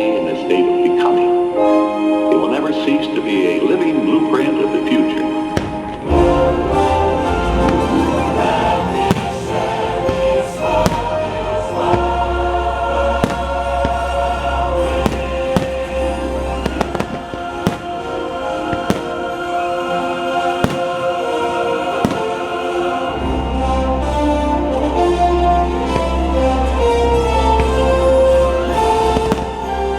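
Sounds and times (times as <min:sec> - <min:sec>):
orchestral music with choir: 0:00.0 - 0:29.9
fireworks bursting: 0:05.2 - 0:23.5, 0:24.3 - 0:29.9.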